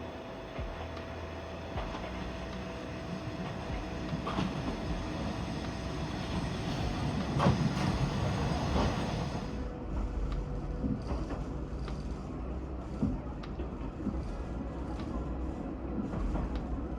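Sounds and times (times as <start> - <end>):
railcar rumbling on rails: 0.0 - 16.9.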